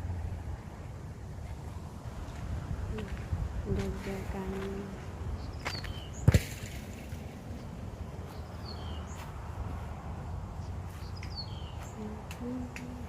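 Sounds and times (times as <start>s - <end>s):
wind rumbling on microphone: 0.0s - 13.0s
bird chirping: 5.3s - 6.4s, 7.5s - 12.2s.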